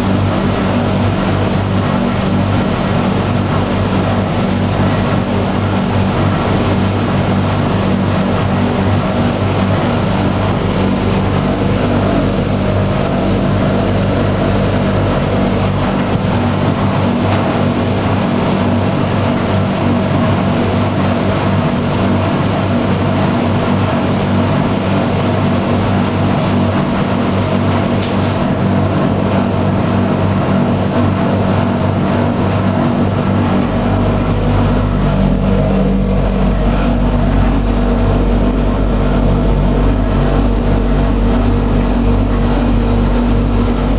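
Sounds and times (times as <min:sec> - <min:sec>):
deep low hum: 0:00.0 - 0:43.9
washing machine drum turning: 0:04.1 - 0:20.0.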